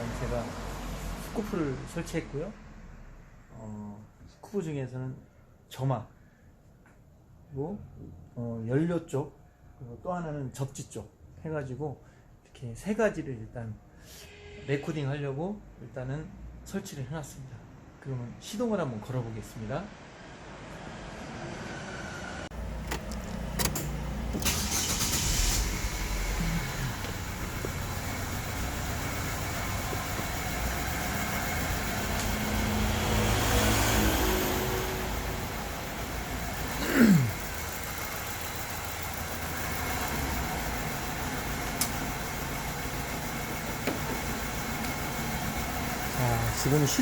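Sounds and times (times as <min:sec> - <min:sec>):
car engine running roughly: 0:22.6 - 0:33.4, 0:34.7 - 0:47.0
sharp engine clicks: 0:22.8 - 0:32.4.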